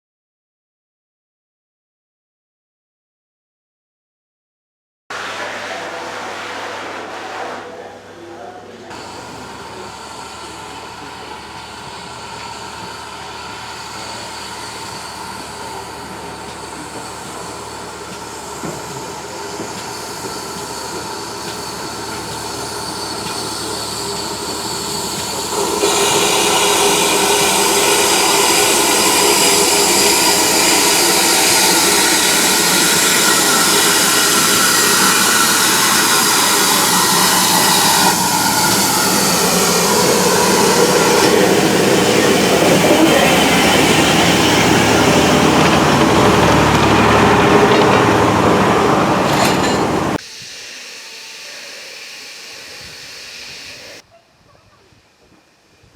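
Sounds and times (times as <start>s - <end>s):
train running on rails: 8.9s - 54.0s.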